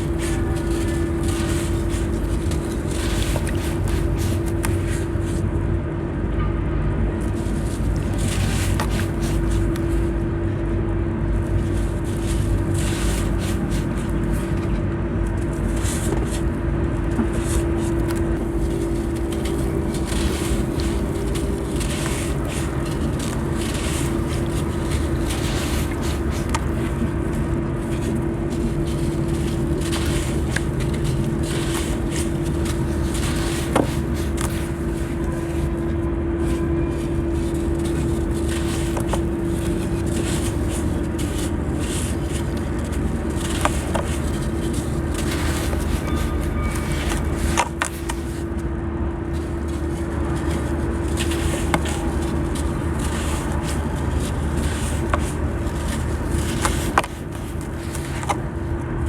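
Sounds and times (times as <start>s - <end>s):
wet sand crumbling: 0.0s - 5.4s, 17.2s - 35.8s, 37.3s - 48.5s, 49.3s - 58.5s
steady low hum: 0.0s - 59.0s.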